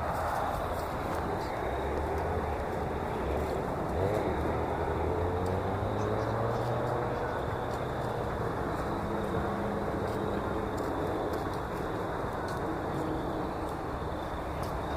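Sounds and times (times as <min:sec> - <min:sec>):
engine pulling away: 0:00.0 - 0:14.9
traffic engine noise: 0:00.0 - 0:14.9.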